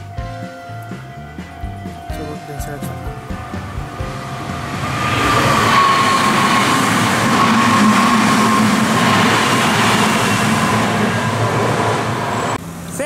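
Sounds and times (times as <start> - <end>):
electric train passing: 0.0 - 13.0
train motor whine: 0.0 - 13.0.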